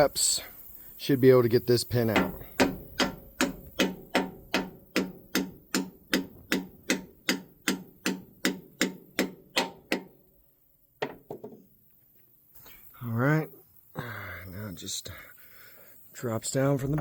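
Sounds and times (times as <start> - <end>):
hammer striking metal pin: 2.1 - 10.2.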